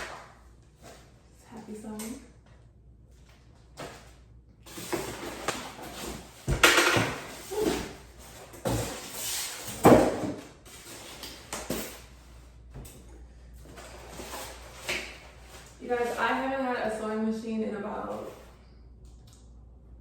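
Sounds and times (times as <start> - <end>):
cardboard and wrapping rustling: 3.2 - 12.5, 13.6 - 16.5.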